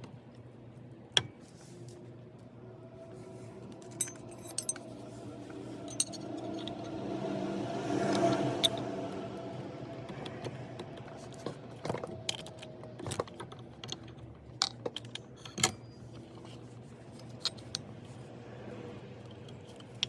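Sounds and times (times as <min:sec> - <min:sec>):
faint steady hum: 0:00.0 - 0:20.0
metal tools clinking: 0:03.8 - 0:06.8.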